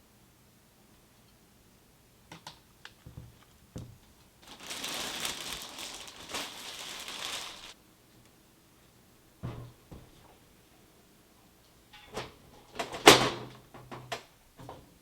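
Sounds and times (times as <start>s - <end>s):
crinkling rustle: 4.1s - 7.8s.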